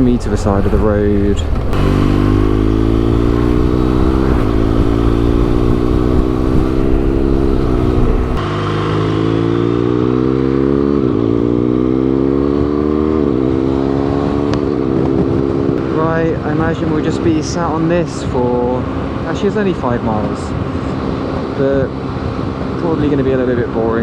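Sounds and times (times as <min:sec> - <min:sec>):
wind rumble on microphone: 0:00.0 - 0:08.5, 0:14.2 - 0:24.0
motorcycle engine accelerating: 0:00.0 - 0:23.2.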